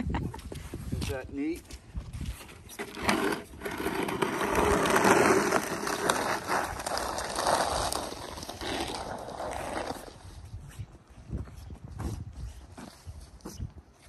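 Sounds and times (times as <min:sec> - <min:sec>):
snow scraping: 0:02.7 - 0:10.3.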